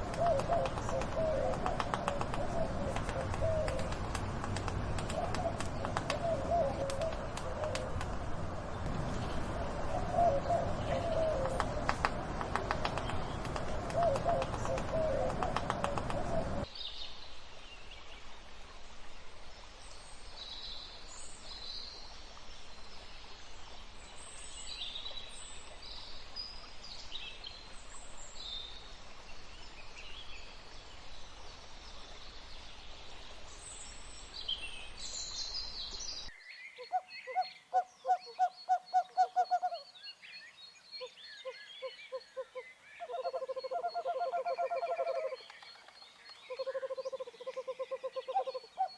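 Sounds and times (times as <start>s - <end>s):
birds chirping: 0.0s - 16.7s
background hiss: 0.0s - 39.1s.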